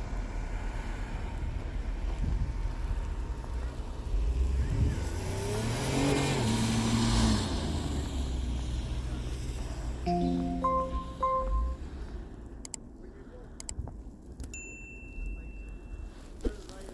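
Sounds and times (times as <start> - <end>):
low traffic rumble: 0.0 - 14.4
short beeps: 10.1 - 11.8.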